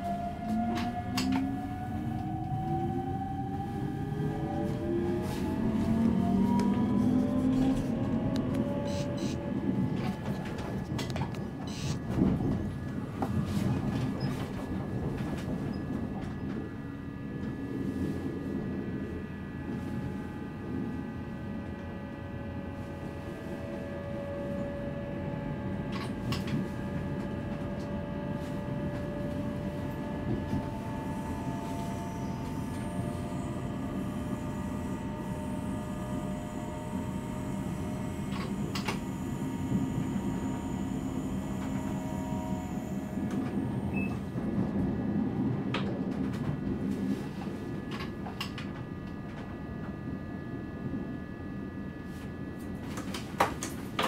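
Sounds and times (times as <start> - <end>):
whining tones: 0.0 - 10.8, 19.2 - 45.4
train wheels rumbling on rails: 0.0 - 54.0.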